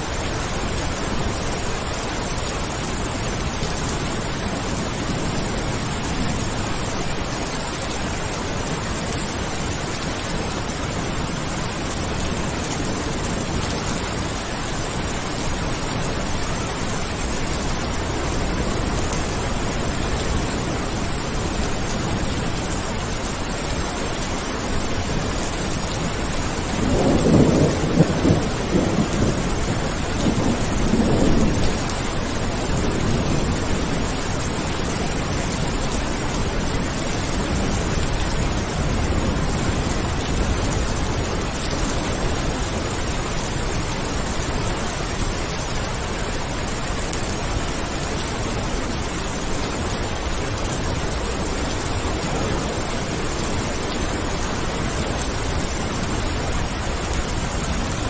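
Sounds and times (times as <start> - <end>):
steady rain: 0.0 - 58.0
rolling thunder: 26.6 - 34.3.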